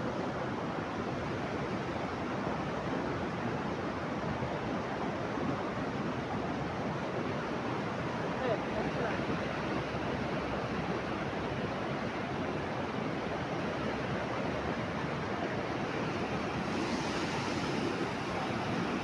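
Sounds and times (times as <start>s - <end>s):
steady rushing noise: 14.0s - 19.0s
bright hiss: 15.9s - 19.0s.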